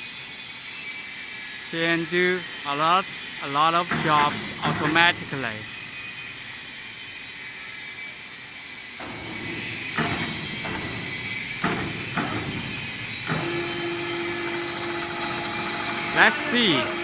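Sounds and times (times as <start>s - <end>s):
hissing factory noise: 0.0s - 17.0s
sharp metallic knocks: 3.6s - 6.3s, 9.0s - 17.0s.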